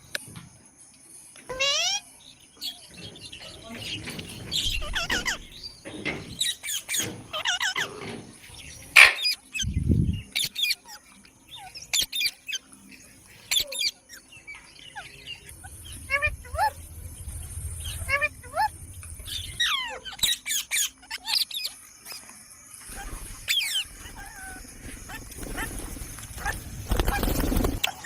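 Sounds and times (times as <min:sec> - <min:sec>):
parrots chirping and whistling: 0:01.5 - 0:02.0, 0:04.2 - 0:08.1, 0:08.9 - 0:12.7, 0:13.5 - 0:22.2, 0:22.9 - 0:28.0
sharp click: 0:09.0 - 0:09.3.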